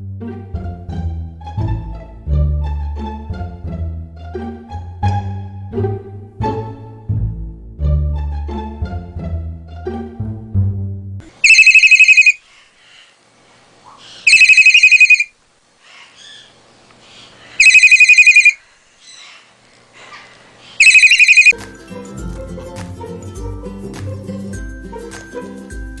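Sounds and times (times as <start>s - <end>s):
trilling telephone ring: 11.4s - 12.4s, 14.3s - 15.3s, 17.6s - 18.6s, 20.8s - 21.6s.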